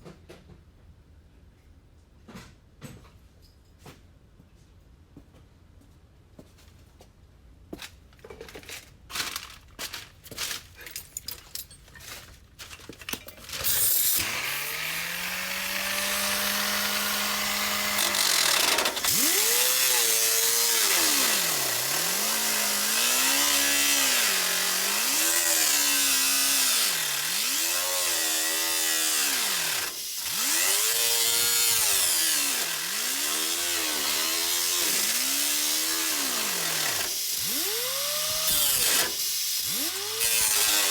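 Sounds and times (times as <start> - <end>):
rotary tool grinding metal: 13.4 - 40.9.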